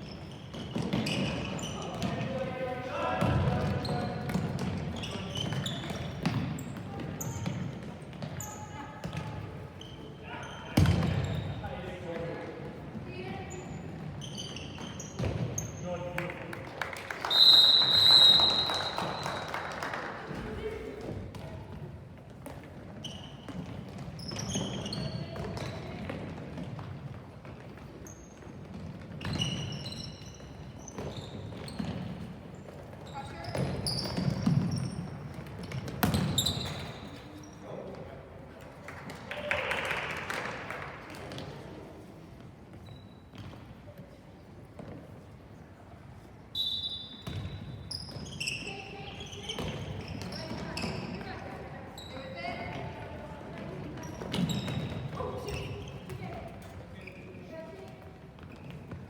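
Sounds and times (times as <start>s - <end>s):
sneakers squeaking: 0.0s - 16.2s, 17.2s - 39.2s, 40.4s - 59.0s
ball bouncing on court floor: 0.1s - 2.4s, 3.2s - 10.0s, 10.7s - 15.8s, 20.3s - 37.2s, 41.1s - 41.7s, 42.7s - 44.1s, 47.2s - 57.2s, 57.8s - 59.0s.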